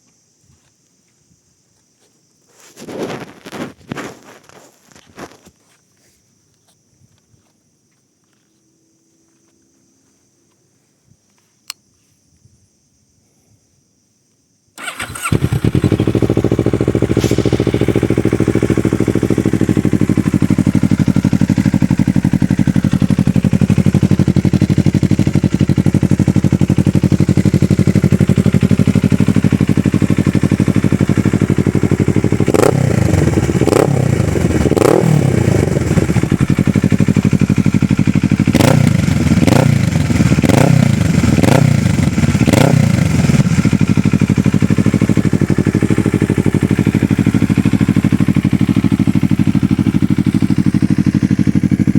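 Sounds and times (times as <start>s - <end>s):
motorcycle engine idling and revving: 2.8s - 5.8s, 14.8s - 51.9s.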